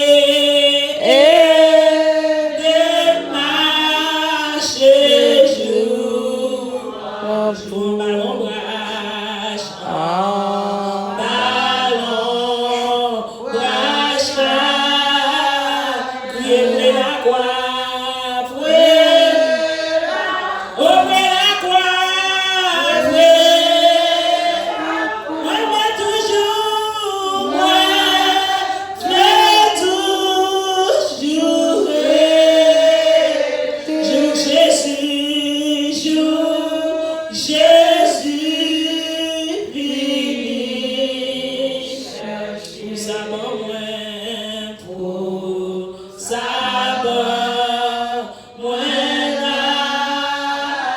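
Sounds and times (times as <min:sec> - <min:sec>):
group singing worship song: 0:00.0 - 0:50.9.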